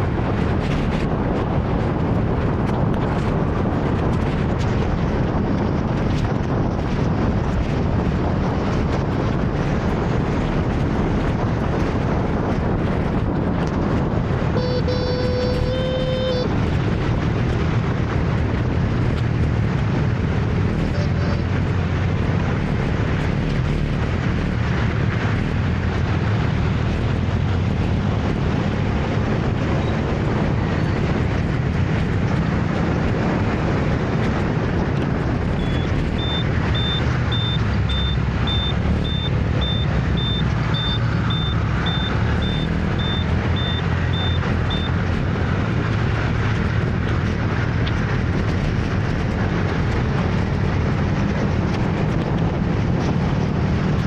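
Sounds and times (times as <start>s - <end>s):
city traffic noise: 0.0s - 54.0s
high electronic beeps: 14.6s - 16.5s, 35.6s - 45.0s.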